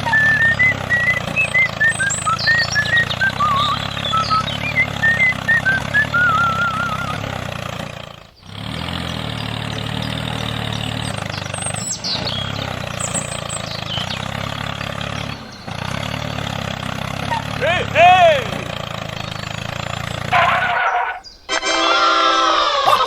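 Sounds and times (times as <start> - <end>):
warbling whistle-like chirps: 0.0 - 7.2
falling whistles: 0.0 - 7.4, 8.3 - 23.0
engine idling: 0.0 - 21.6.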